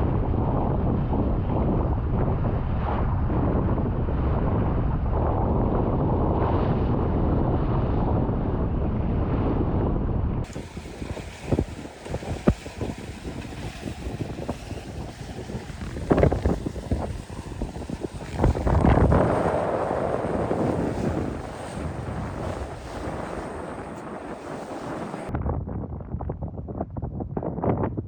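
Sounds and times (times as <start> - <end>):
wind buffeting microphone: 0.0 - 28.0
water and waves: 10.4 - 25.3.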